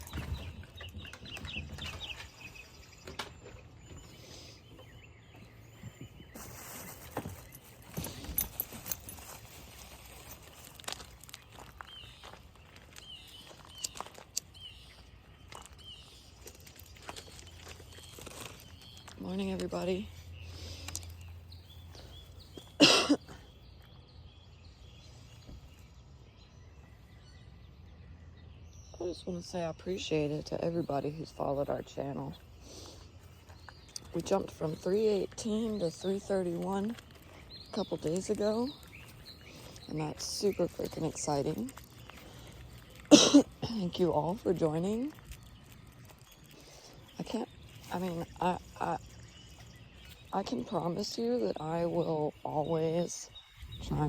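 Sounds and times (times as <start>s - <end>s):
birds chirping: 0.0s - 54.0s
person coughing: 22.8s - 23.4s, 43.1s - 43.7s.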